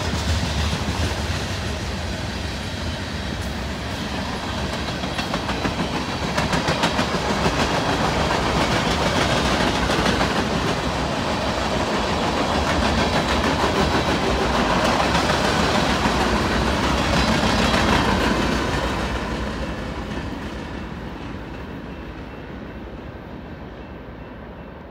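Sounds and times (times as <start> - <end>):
freight train wheels clicking: 0.0 - 24.5.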